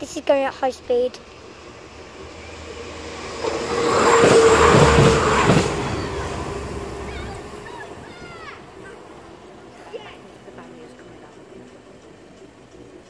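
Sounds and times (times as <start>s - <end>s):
train passing at high speed: 0.0s - 13.0s.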